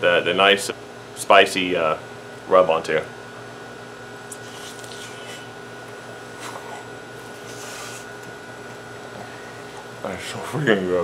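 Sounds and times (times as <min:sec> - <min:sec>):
steady machine hum: 0:00.0 - 0:11.0
faint mouth sounds: 0:04.3 - 0:05.5
man chewing: 0:04.3 - 0:09.9.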